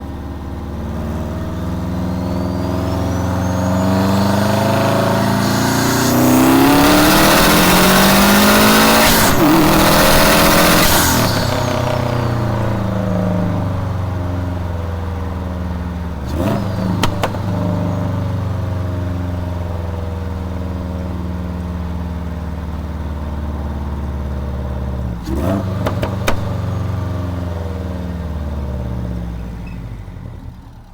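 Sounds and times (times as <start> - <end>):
engine revving: 0.0 - 21.5, 24.9 - 29.4
engine pops: 1.8 - 20.8, 25.2 - 27.2.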